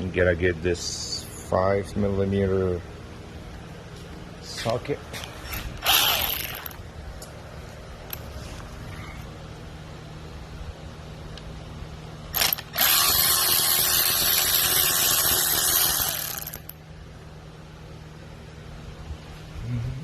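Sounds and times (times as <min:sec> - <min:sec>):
power ratchet running: 0:05.5 - 0:06.8, 0:12.3 - 0:16.8.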